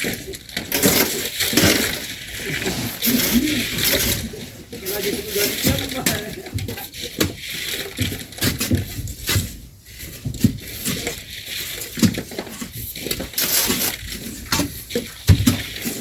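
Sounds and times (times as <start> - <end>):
shovels scraping into sand: 0.7 - 6.4, 13.1 - 14.8
sand being thrown: 2.3 - 4.4.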